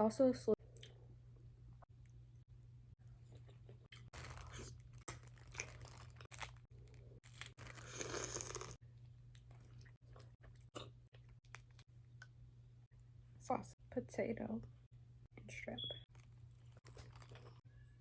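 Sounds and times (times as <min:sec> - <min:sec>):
person chewing and crunching: 0:03.2 - 0:11.8, 0:16.1 - 0:17.6.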